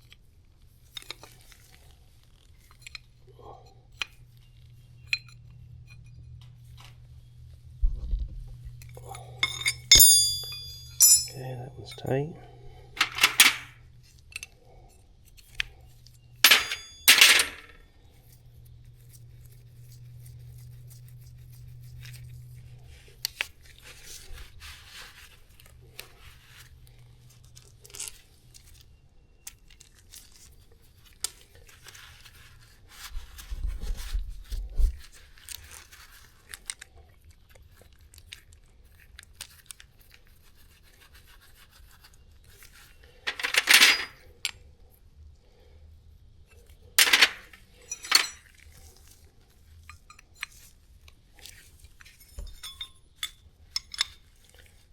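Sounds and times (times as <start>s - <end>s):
metallic clanks of hand tools: 9.1s - 12.1s, 13.0s - 13.7s, 16.4s - 17.7s, 43.3s - 44.2s, 47.0s - 48.4s, 52.2s - 54.2s.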